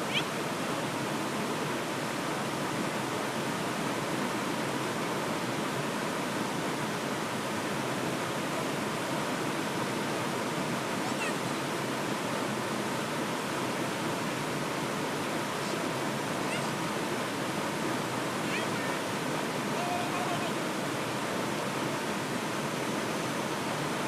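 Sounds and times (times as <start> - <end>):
river torrent rushing: 0.0 - 24.0
heavy rain: 11.0 - 11.6, 17.6 - 22.5.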